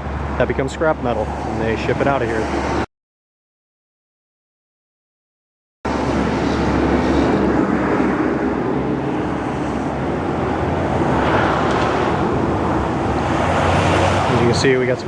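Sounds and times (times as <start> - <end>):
vehicle engine rumbling: 0.0 - 2.9, 5.9 - 15.0
wind noise on microphone: 5.9 - 15.0.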